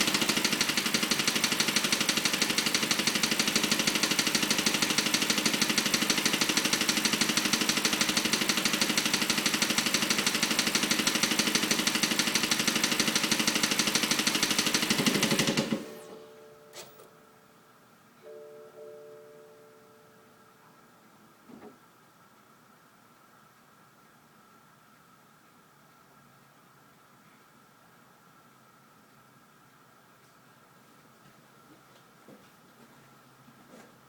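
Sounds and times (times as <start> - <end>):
rapid steady clicking: 0.0 - 15.9
car engine idling: 0.0 - 16.3.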